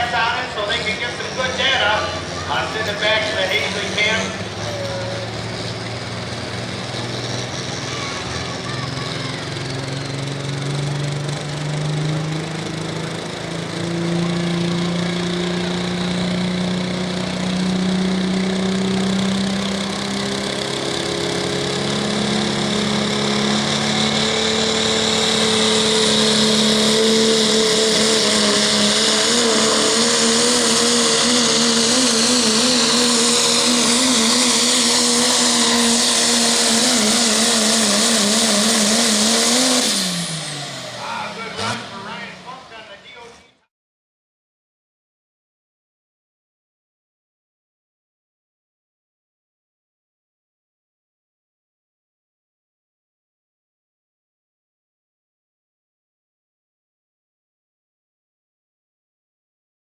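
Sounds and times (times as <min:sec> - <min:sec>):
high turbo whine: 0:00.0 - 0:43.6
diesel truck engine at full throttle: 0:00.0 - 0:43.7.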